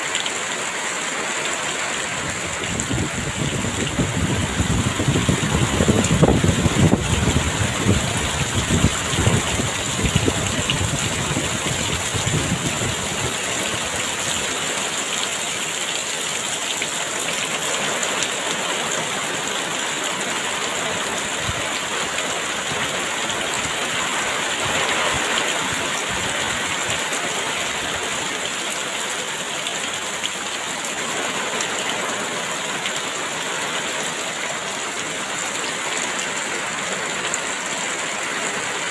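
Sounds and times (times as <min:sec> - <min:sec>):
heavy rain pouring: 0:00.0 - 0:38.9
gusty wind rumbling: 0:02.1 - 0:14.1.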